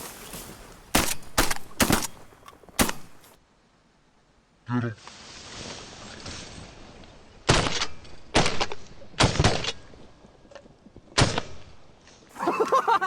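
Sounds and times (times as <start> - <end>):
shotgun blasts: 0.9 - 3.3.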